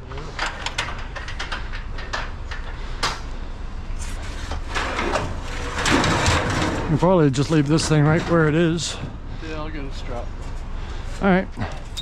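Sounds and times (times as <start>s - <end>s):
sharp knocks and clatters: 4.5s - 7.0s.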